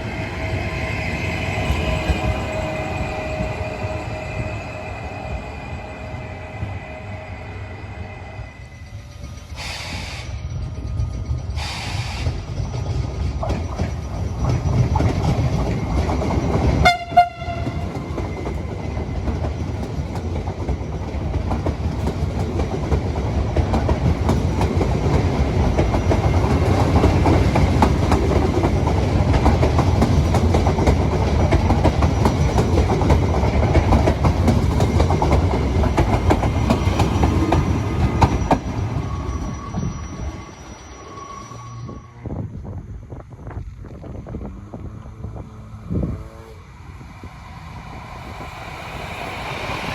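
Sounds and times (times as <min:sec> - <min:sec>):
train wheels clattering on rails: 0:09.0 - 0:40.6
train horn blast: 0:16.8 - 0:18.1.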